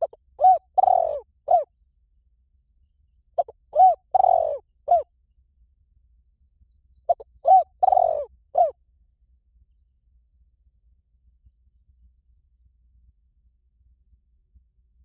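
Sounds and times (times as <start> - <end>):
dove cooing: 0.0 - 1.7, 3.4 - 5.0, 7.1 - 8.7.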